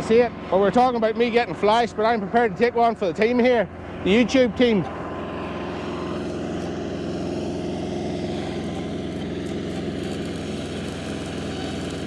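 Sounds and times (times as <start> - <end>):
generator engine running: 0.0 - 12.0
welding arc crackling: 8.3 - 12.0.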